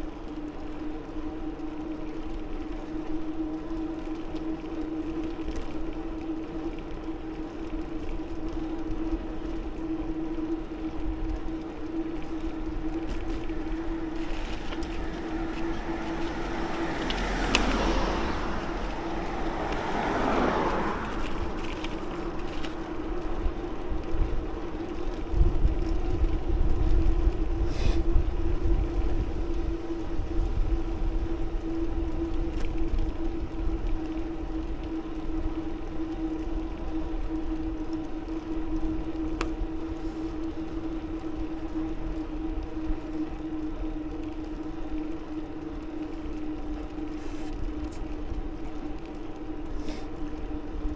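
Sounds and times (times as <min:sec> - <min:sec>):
wind rumbling on microphone: 0:00.0 - 0:50.9
vehicle passing: 0:12.4 - 0:25.3.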